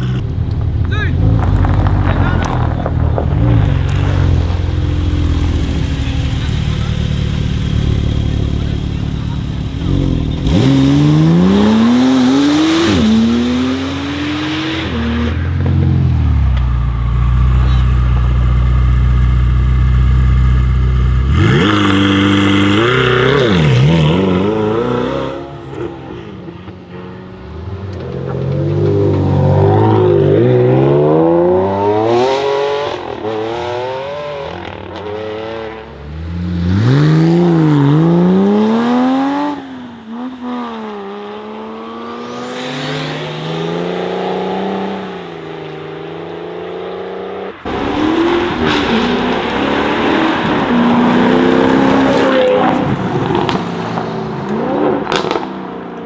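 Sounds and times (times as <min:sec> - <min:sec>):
sports car revving and accelerating: 0:01.6 - 0:16.0, 0:20.4 - 0:55.8
sports car engine at steady revs: 0:04.6 - 0:13.1.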